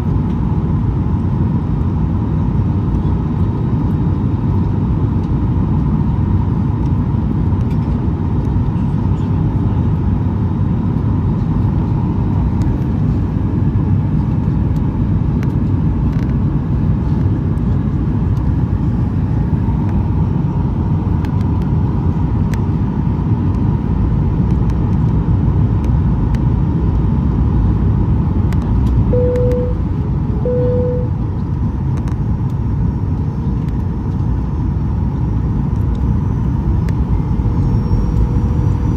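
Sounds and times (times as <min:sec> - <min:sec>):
jet engines humming: 0:29.1 - 0:31.2
cabin chime tone: 0:29.2 - 0:29.8, 0:30.4 - 0:31.1.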